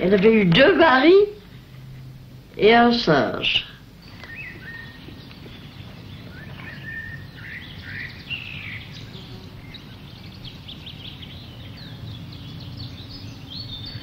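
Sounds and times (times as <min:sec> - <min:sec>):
low outdoor rumble: 0:00.0 - 0:14.0
birds chirping and whistling: 0:03.5 - 0:14.0.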